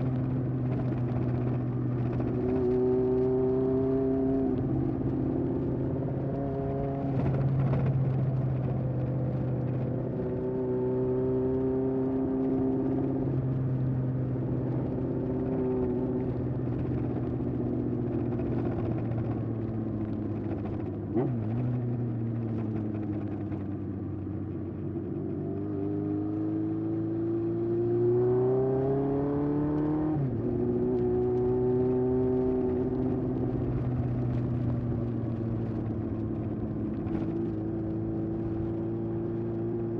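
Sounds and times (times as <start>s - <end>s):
motorcycle engine revving: 0.0s - 13.2s, 25.1s - 39.9s.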